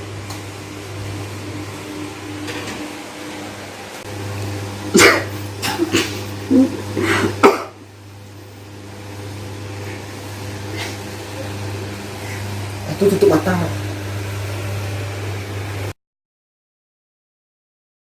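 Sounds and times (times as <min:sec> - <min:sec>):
person coughing hard: 0:04.9 - 0:07.8.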